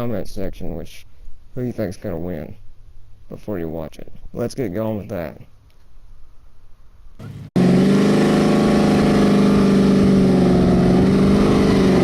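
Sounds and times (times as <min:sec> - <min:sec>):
racing engine at high revs: 0:07.2 - 0:12.0.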